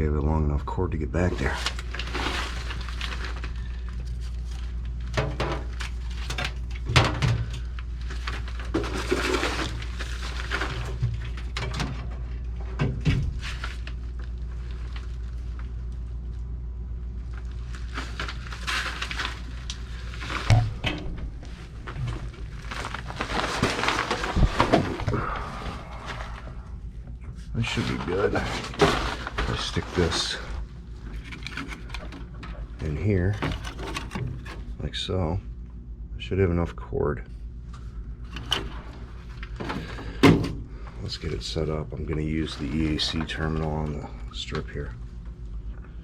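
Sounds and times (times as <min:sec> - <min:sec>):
steady low hum: 0:00.0 - 0:46.0
tools and parts being handled: 0:01.4 - 0:14.0, 0:17.9 - 0:25.1, 0:27.4 - 0:34.8.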